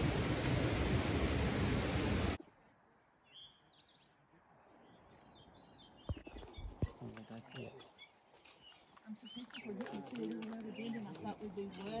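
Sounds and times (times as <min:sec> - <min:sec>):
loud rushing hiss: 0:00.0 - 0:02.4
songbirds chirping and warbling: 0:02.4 - 0:12.0.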